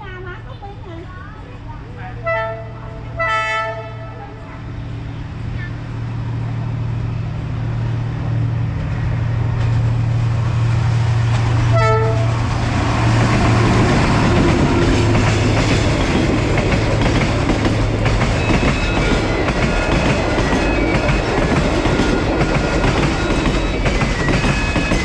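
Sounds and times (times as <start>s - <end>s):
diesel train engine hum: 0.0s - 25.0s
train horn blast: 2.2s - 4.4s, 11.6s - 12.6s
carriages rushing past: 4.1s - 25.0s
train wheels clattering on rails: 8.7s - 25.0s.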